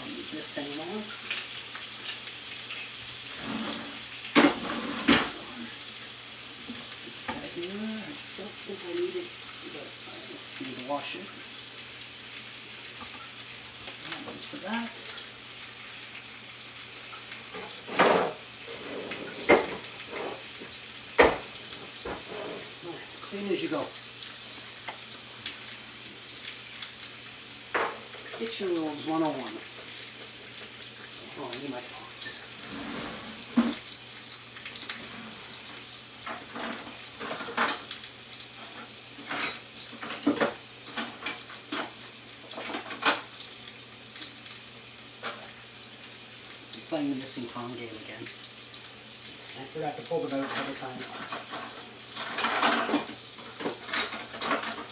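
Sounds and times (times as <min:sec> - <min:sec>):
chicken sizzling in a pan: 0:00.0 - 0:54.9
kitchenware clattering: 0:03.4 - 0:05.5, 0:17.5 - 0:22.8, 0:27.7 - 0:28.6, 0:36.3 - 0:38.0, 0:50.3 - 0:54.9.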